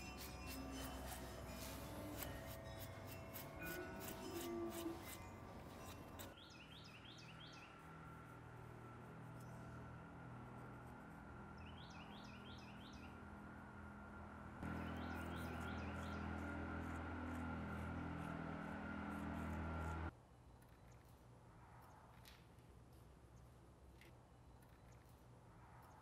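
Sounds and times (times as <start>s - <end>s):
steady low hum: 0.0s - 6.4s, 7.6s - 26.0s
small bird chirping: 0.0s - 7.9s, 11.5s - 13.2s, 14.6s - 17.4s.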